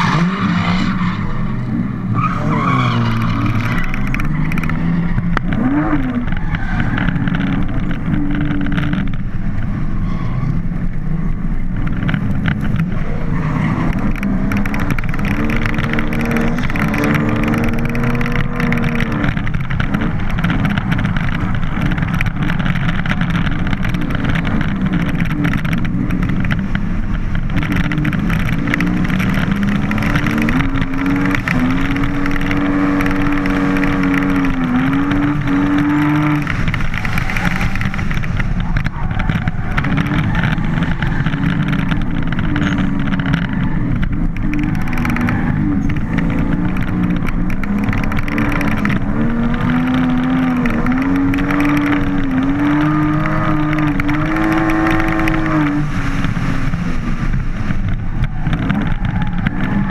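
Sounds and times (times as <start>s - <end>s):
car engine revving: 0.0s - 59.9s
steady rushing noise: 3.1s - 59.9s.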